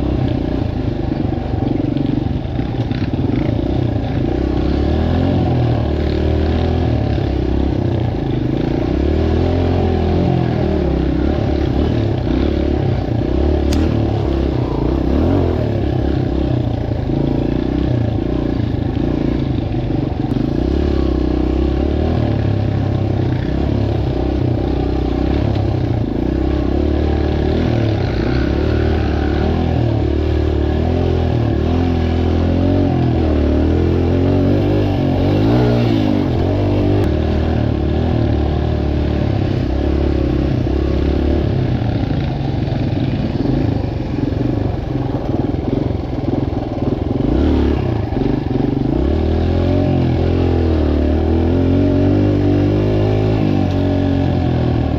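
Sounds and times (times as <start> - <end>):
dirt bike engine revving: 2.6 - 54.9
sharp click: 13.6 - 14.4.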